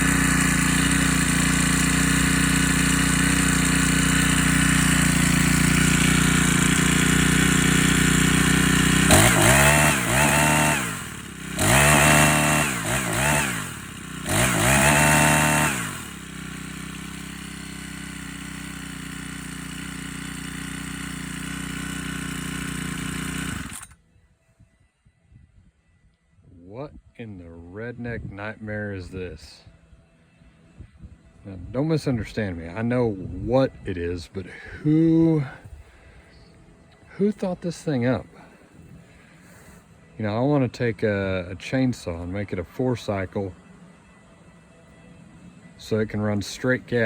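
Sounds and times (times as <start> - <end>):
chainsaw engine revving: 0.0 - 24.0.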